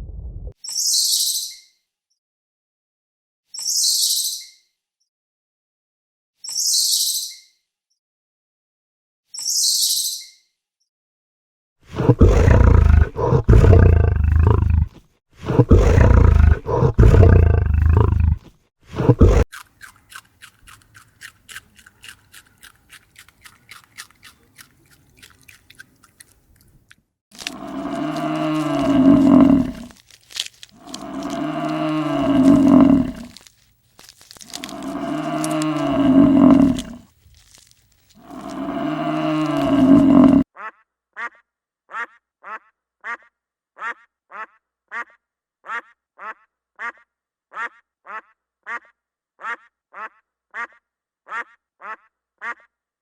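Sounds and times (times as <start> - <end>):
low roaring animal calls: 11.9 - 18.4, 27.4 - 30.0, 30.8 - 33.5, 34.5 - 37.0, 38.2 - 40.4
cattle mooing: 27.4 - 29.9, 30.8 - 33.4, 34.5 - 37.0, 38.2 - 40.4.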